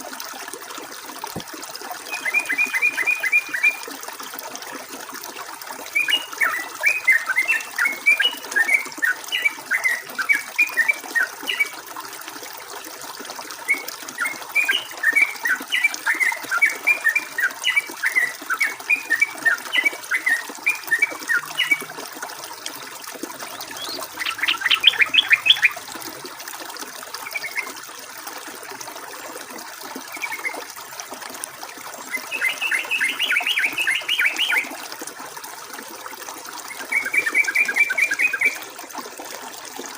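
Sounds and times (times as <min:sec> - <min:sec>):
flowing water hiss: 0:00.0 - 0:39.9
bird singing chattering phrases: 0:23.4 - 0:25.8, 0:32.2 - 0:34.6.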